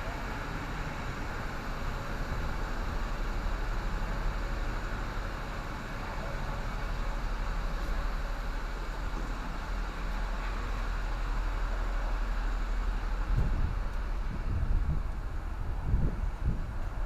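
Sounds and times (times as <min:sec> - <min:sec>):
refrigeration unit drone: 0:00.0 - 0:17.0
wind buffeting microphone: 0:13.2 - 0:17.0.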